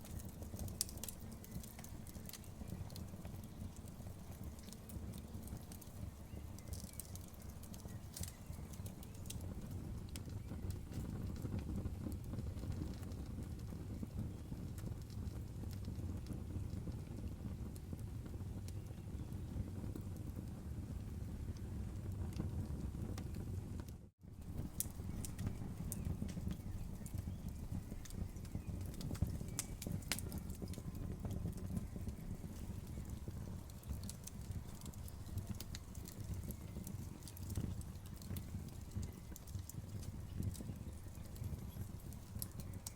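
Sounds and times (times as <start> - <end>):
burning wood crackling and popping: 0.0 - 42.9
campfire flames rumbling: 0.0 - 42.9.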